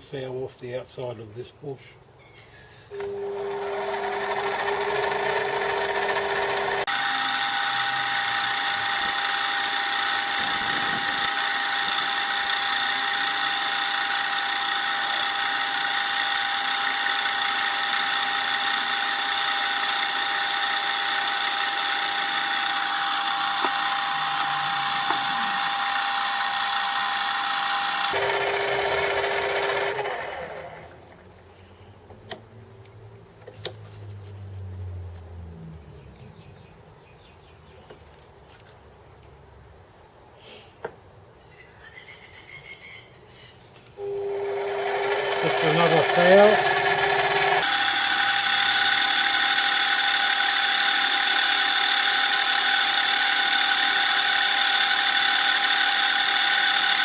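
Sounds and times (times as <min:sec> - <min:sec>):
metal lathe whining: 0:02.9 - 0:30.9, 0:44.0 - 0:57.0
cutting tool hissing on metal: 0:06.8 - 0:28.2, 0:45.4 - 0:57.0.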